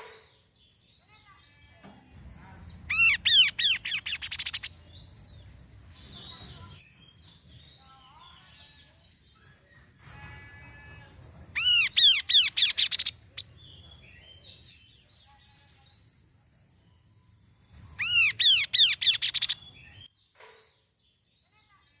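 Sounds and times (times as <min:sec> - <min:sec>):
soft bird chirps: 0:00.0 - 0:22.0
bird singing whistled notes: 0:02.4 - 0:10.3, 0:10.9 - 0:20.2.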